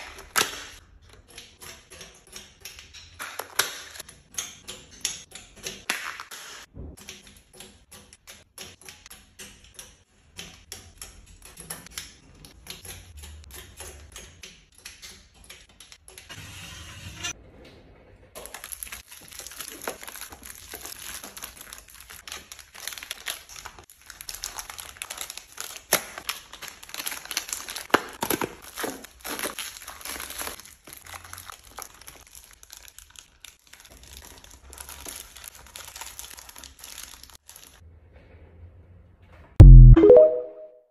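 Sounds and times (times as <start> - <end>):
plastic packaging crinkling and tearing: 18.4 - 37.8.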